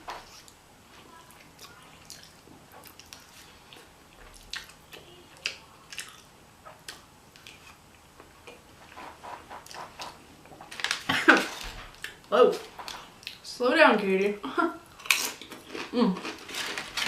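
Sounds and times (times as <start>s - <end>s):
close-miked chewing: 1.2s - 8.7s, 14.9s - 16.8s.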